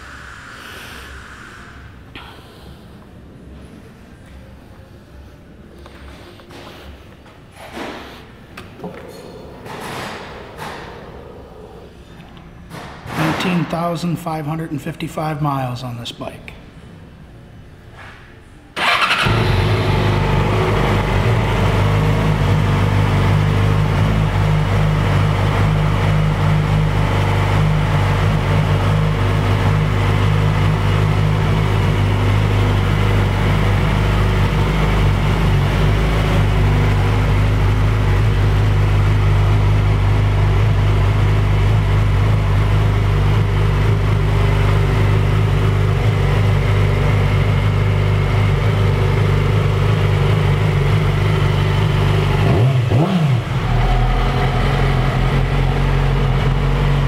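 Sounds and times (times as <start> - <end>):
motorcycle engine idling: 18.8 - 57.0.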